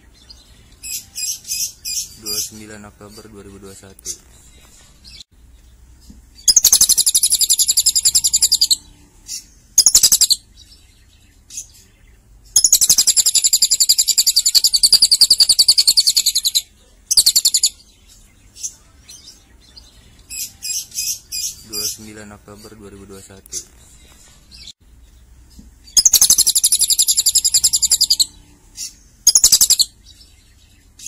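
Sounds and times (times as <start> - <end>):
lovebird chattering trills: 6.4 - 8.8, 9.4 - 10.4, 12.6 - 17.8, 25.9 - 30.0.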